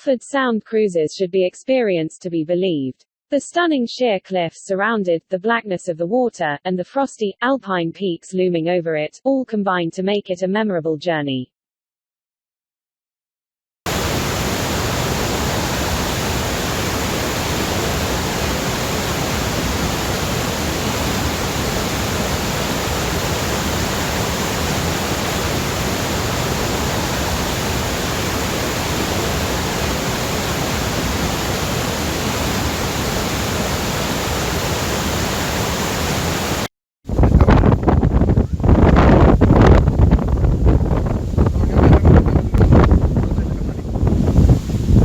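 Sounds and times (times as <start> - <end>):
waterfall roaring: 13.9 - 36.7.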